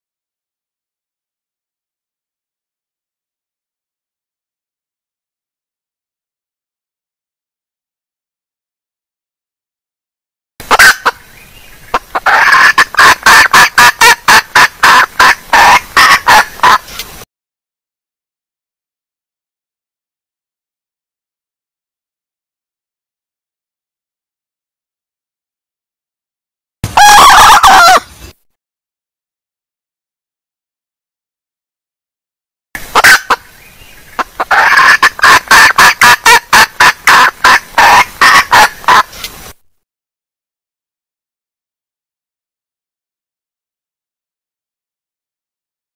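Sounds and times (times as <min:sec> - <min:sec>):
hen clucking rapidly: 0:10.7 - 0:11.2, 0:11.9 - 0:16.8, 0:27.0 - 0:28.0, 0:32.9 - 0:33.4, 0:34.1 - 0:39.1.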